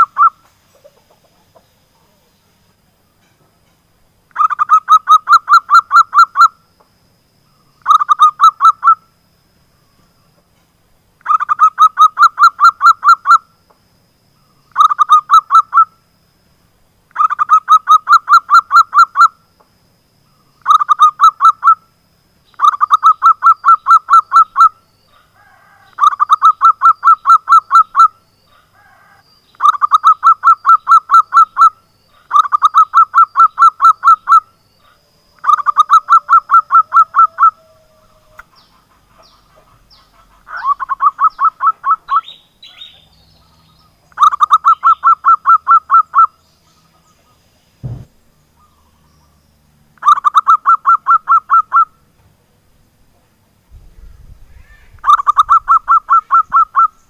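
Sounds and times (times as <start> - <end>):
dove calling in rapid notes: 0.0 - 0.4, 4.3 - 6.6, 7.8 - 9.0, 11.2 - 13.5, 14.7 - 15.9, 17.1 - 19.4, 20.6 - 21.8, 22.5 - 47.4, 50.0 - 52.0, 54.4 - 57.0.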